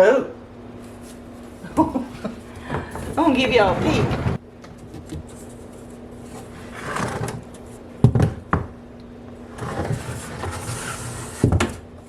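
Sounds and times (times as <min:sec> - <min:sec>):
faint steady hum: 0:00.0 - 0:12.0
scraping and rustling: 0:02.2 - 0:07.8, 0:09.5 - 0:11.8.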